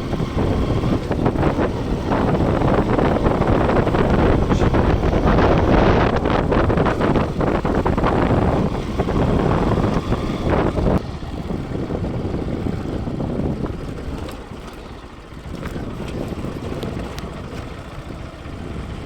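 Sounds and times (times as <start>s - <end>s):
motorcycle engine: 0.0s - 19.0s
wind rush on microphone: 0.0s - 19.0s.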